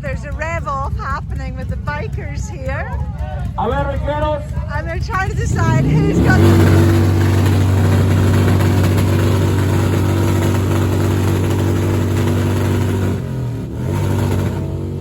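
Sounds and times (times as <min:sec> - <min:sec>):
motorcycle engine revving high: 0:00.0 - 0:15.0.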